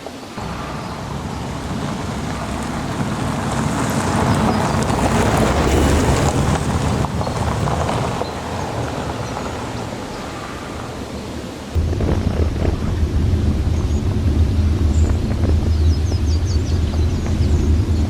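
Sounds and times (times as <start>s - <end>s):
steady rain: 0.0s - 17.3s
low rumble of thunder: 11.8s - 18.0s.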